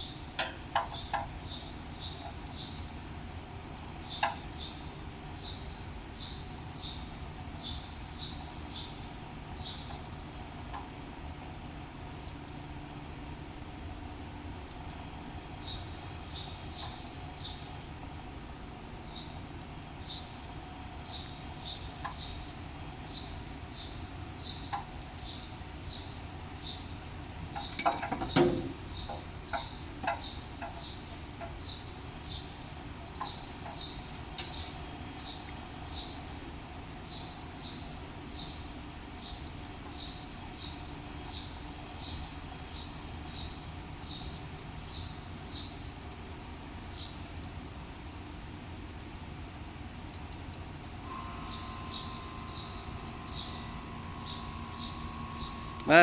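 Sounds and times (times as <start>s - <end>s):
bird chirping: 0.8s - 2.8s, 5.4s - 9.0s, 9.6s - 10.1s, 21.0s - 26.9s, 27.5s - 36.3s, 51.4s - 55.7s.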